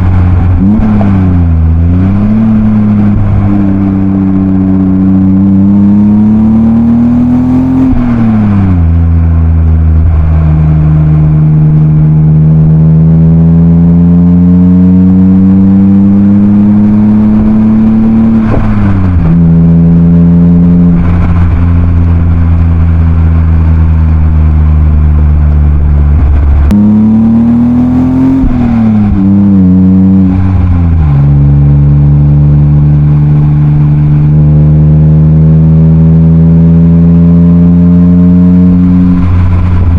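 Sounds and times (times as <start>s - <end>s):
car engine accelerating through gears: 0.0s - 39.9s.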